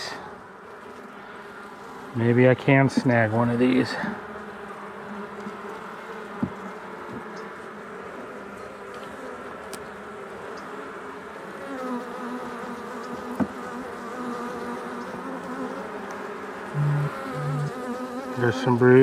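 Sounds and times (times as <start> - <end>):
bees humming: 0.0 - 19.0
loud low buzz: 16.7 - 17.8.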